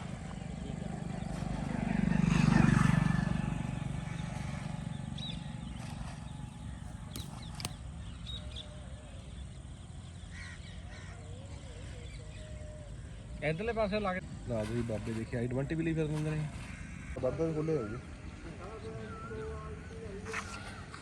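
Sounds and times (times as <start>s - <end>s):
vehicle engine passing by: 0.6s - 7.5s
sharp clicks: 6.9s - 8.0s.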